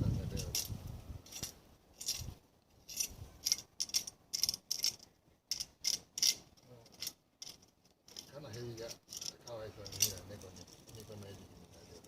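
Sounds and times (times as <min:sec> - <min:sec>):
small metal objects clinking: 0:01.3 - 0:11.3.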